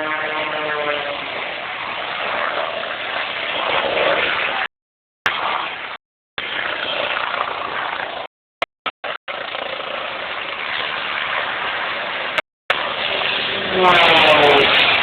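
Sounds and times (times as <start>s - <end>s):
aircraft engine drone: 0.0s - 4.6s, 9.1s - 15.0s.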